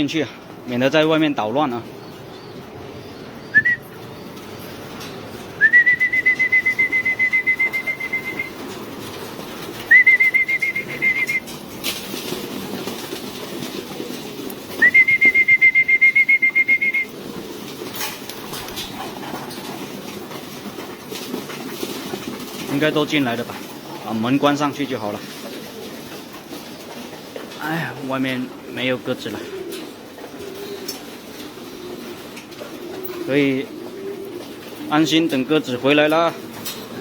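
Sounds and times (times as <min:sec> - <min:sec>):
trilled whistle: 0:05.6 - 0:08.5, 0:09.9 - 0:11.4, 0:14.8 - 0:17.1.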